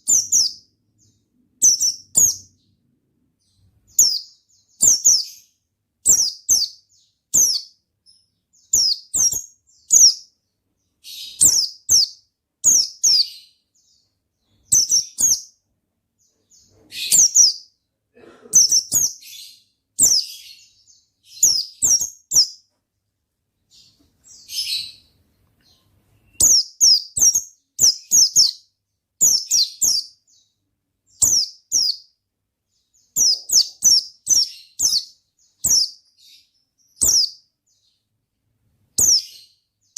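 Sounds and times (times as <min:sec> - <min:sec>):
bird high chirps: 0:00.0 - 0:17.9, 0:18.6 - 0:22.8, 0:23.7 - 0:38.1, 0:38.9 - 0:39.9.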